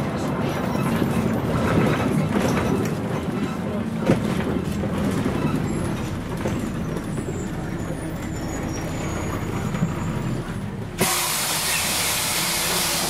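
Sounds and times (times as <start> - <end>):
bus diesel engine rumbling: 0.0 - 13.0
compressed air hissing: 11.0 - 13.0.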